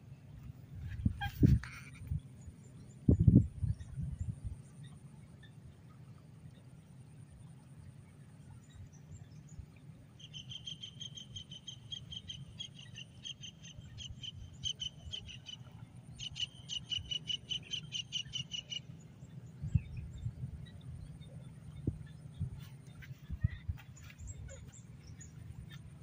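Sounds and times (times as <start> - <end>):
bird chirping rapidly: 16.2 - 18.8.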